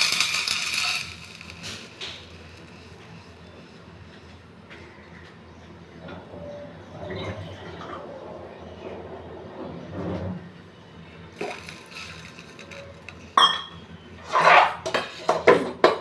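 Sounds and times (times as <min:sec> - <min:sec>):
utensil clinking: 0:00.0 - 0:03.6, 0:11.4 - 0:13.8.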